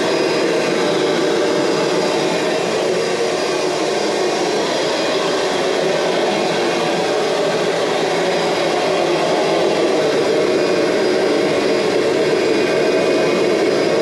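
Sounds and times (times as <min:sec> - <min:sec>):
vacuum cleaner motor running: 0:00.0 - 0:14.0.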